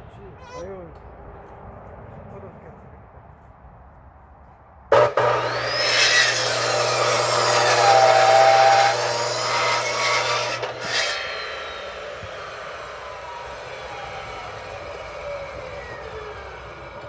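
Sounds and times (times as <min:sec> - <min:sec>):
electric saw cutting wood: 0:04.9 - 0:17.0.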